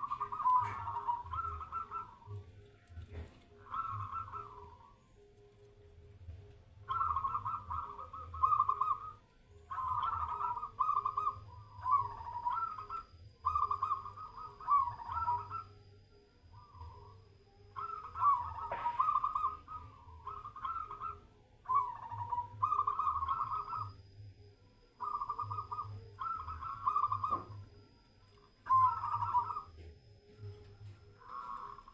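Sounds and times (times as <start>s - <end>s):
dove cooing: 0.0s - 31.9s.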